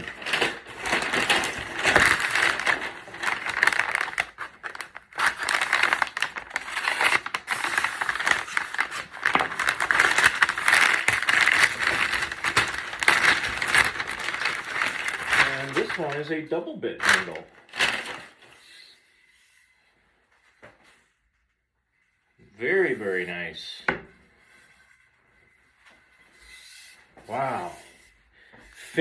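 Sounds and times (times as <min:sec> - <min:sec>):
paper wrapping crinkling: 0:00.0 - 0:16.3, 0:17.0 - 0:18.6.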